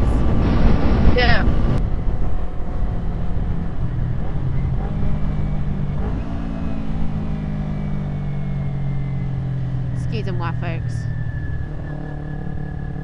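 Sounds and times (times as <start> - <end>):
wind rumble on microphone: 0.0 - 6.7.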